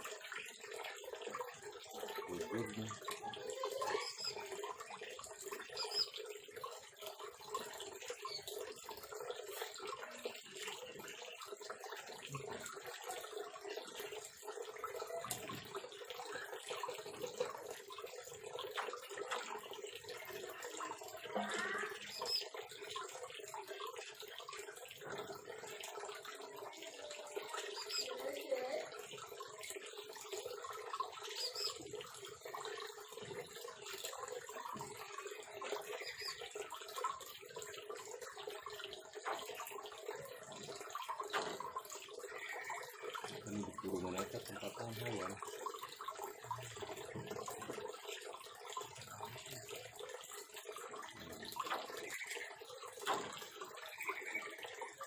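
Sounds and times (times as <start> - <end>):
high bird chirps: 5.7 - 6.2, 31.3 - 31.8.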